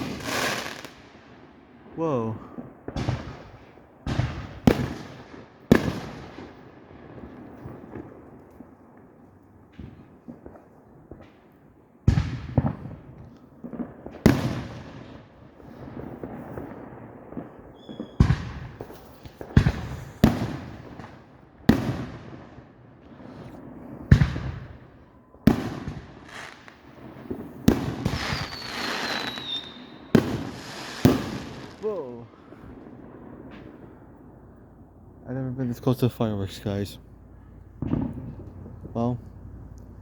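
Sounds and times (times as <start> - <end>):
firework crackling: 0.0 - 1.1, 13.7 - 24.8, 25.5 - 34.2
firework bangs: 0.0 - 1.2, 2.5 - 8.3, 12.0 - 34.6, 35.6 - 39.7
whistling firework shell: 17.7 - 19.1, 27.7 - 31.8.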